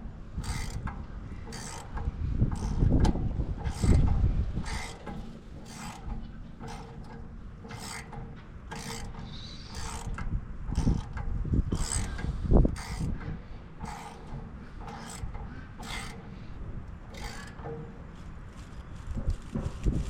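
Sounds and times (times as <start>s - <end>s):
dull knocks of tool: 0.4s - 16.3s
socket ratchet clicking: 4.7s - 16.2s.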